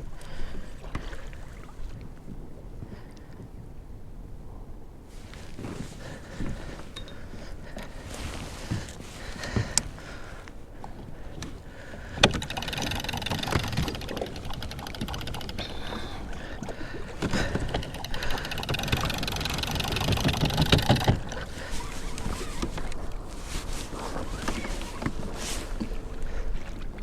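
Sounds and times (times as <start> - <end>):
water against kayak hull: 0.0 - 3.7, 5.1 - 27.0
gear knocking and rattling: 12.2 - 16.1, 17.2 - 21.3.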